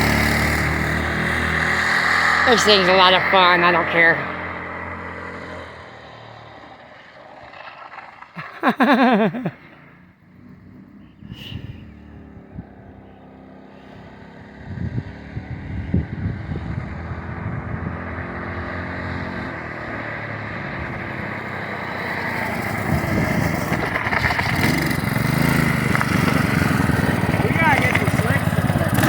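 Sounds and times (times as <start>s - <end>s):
trike engine running: 0.0s - 5.4s, 20.1s - 29.0s.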